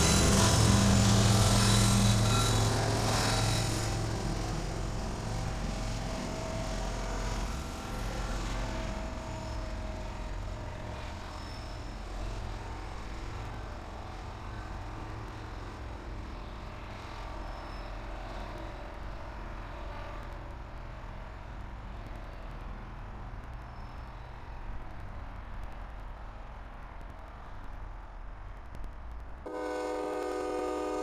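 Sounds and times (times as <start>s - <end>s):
faint high squeals: 0.0s - 4.9s, 11.0s - 12.3s, 17.4s - 18.4s
train rumbling: 0.0s - 31.0s.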